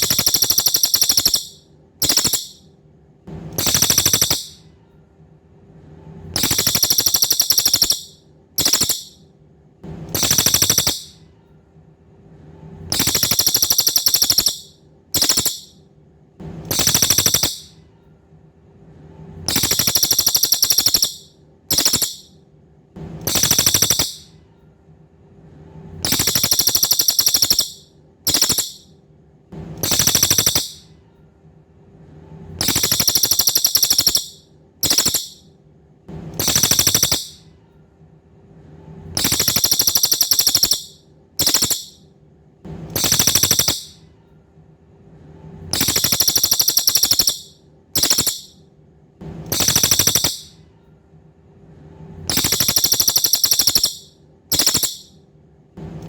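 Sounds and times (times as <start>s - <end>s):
songbird buzzy trills: 0.0s - 2.6s, 3.6s - 4.7s, 6.4s - 9.2s, 10.1s - 11.2s, 12.9s - 15.8s, 16.7s - 17.8s, 19.5s - 22.3s, 23.2s - 24.3s, 26.0s - 28.9s, 29.8s - 30.9s, 32.6s - 35.4s, 36.4s - 37.4s, 39.2s - 42.0s, 43.0s - 44.0s, 45.7s - 48.6s, 49.5s - 50.6s, 52.3s - 55.2s.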